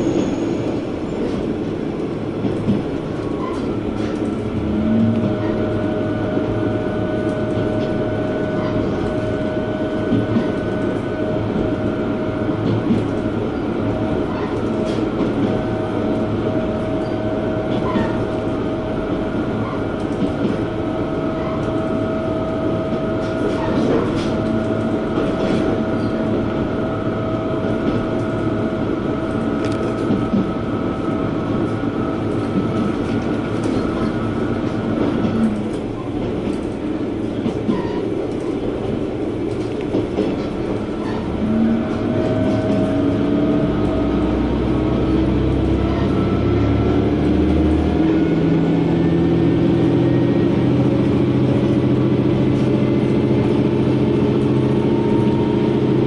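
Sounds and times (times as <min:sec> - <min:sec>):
train wheel and rail noise: 0:00.0 - 0:56.0
clacking over rail joints: 0:32.3 - 0:43.0
diesel engine rising: 0:41.3 - 0:56.0.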